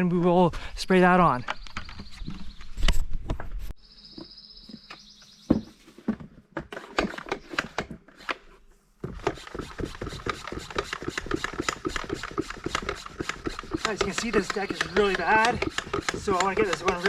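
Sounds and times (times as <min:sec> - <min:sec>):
fast small clicks and rattles: 0:09.2 - 0:17.0.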